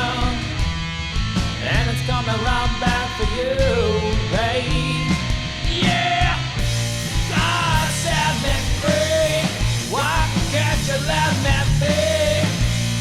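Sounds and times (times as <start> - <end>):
rock band playing: 0.0 - 13.0
sliding lead melody: 5.0 - 13.0.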